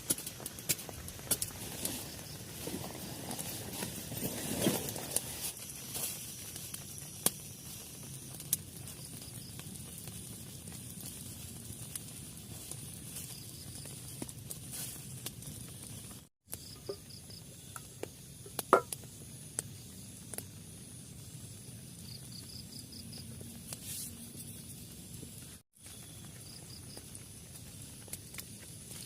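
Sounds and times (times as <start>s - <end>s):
outdoor background hiss: 0.0s - 29.0s
insect chirping trills: 15.6s - 23.6s, 25.8s - 29.0s.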